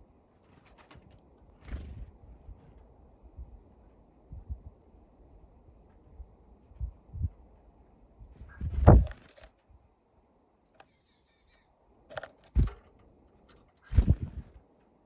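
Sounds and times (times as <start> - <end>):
birds pecking on window feeder: 0.3 - 4.0, 12.1 - 14.9.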